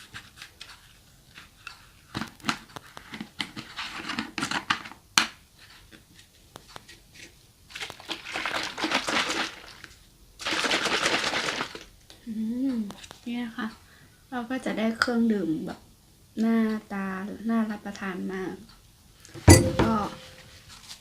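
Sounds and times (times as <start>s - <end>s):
drink shaken in cup: 8.0s - 11.9s.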